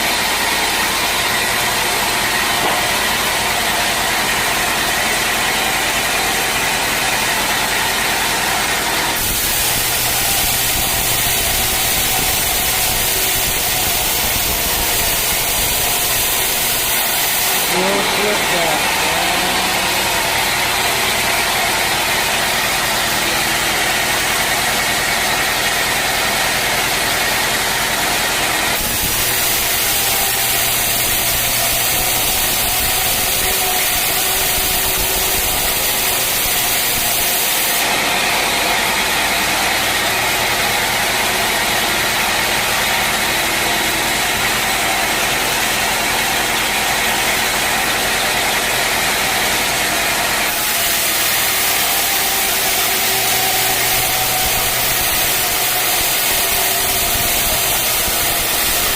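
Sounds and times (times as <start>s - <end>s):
sawmill machinery running: 0.0s - 58.9s
bright hissy machine layer: 9.2s - 21.3s, 28.8s - 37.8s, 50.5s - 58.9s.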